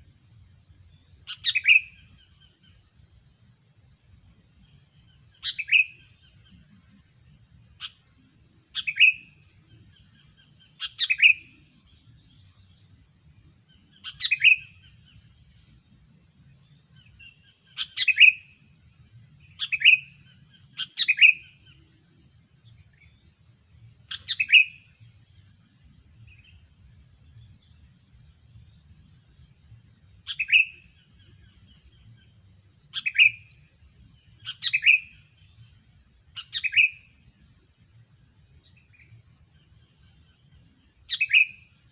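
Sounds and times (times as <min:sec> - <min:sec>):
bird calling: 0:01.2 - 0:02.8, 0:05.4 - 0:06.4, 0:08.8 - 0:11.6, 0:13.7 - 0:15.2, 0:17.0 - 0:18.6, 0:19.5 - 0:21.8, 0:24.1 - 0:25.0, 0:30.2 - 0:32.3, 0:32.9 - 0:33.6, 0:34.4 - 0:35.6, 0:36.4 - 0:37.1, 0:41.1 - 0:41.7.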